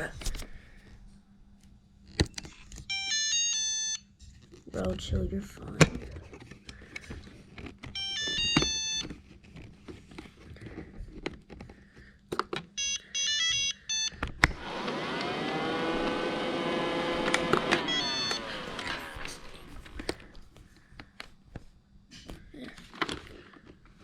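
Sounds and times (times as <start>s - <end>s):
robot vacuum motor running: 14.5s - 20.2s
electronic beep tones: 17.9s - 18.4s.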